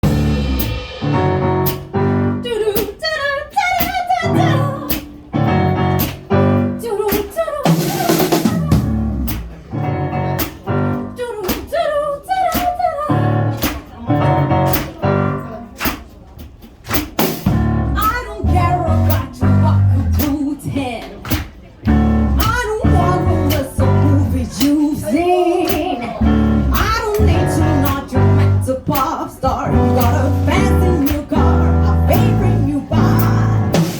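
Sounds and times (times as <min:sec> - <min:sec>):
bass line: 0:00.0 - 0:02.5, 0:04.3 - 0:06.8, 0:07.7 - 0:11.2, 0:17.5 - 0:20.4, 0:21.9 - 0:33.9
jazz-funk band playing: 0:00.0 - 0:03.0, 0:04.2 - 0:11.3, 0:13.1 - 0:33.9.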